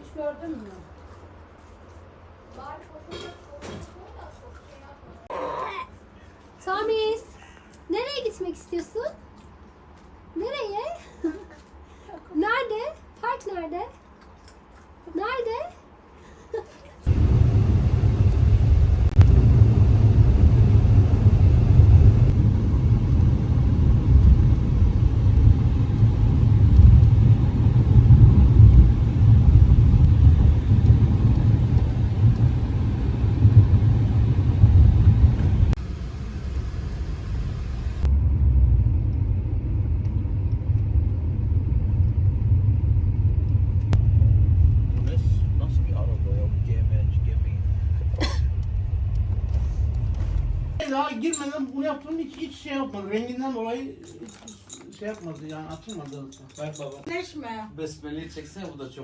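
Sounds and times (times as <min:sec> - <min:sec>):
car road and engine rumble: 0:17.0 - 0:50.8.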